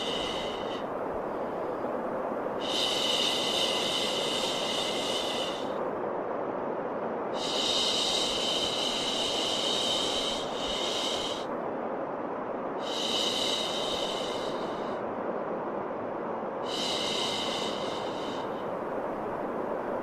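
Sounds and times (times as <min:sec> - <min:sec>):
steady white noise hiss: 0:00.0 - 0:20.0.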